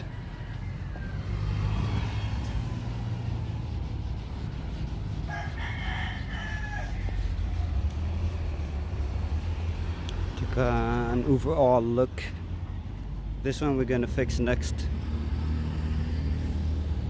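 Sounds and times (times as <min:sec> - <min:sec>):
rooster crowing: 0:00.0 - 0:02.0, 0:05.2 - 0:07.4.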